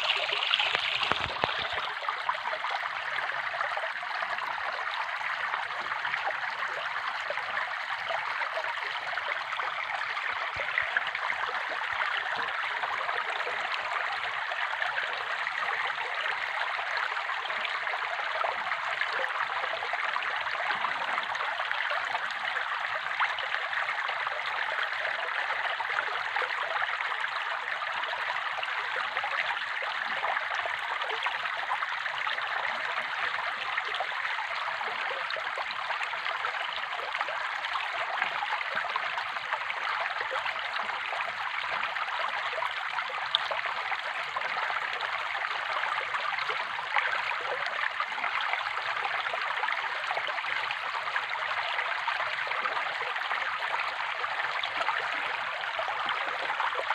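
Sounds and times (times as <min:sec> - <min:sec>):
running water rushing: 0:00.0 - 0:04.0.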